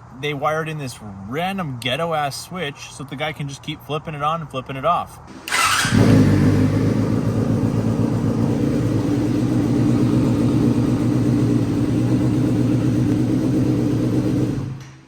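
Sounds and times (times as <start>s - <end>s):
motorcycle engine idling: 5.3s - 15.0s.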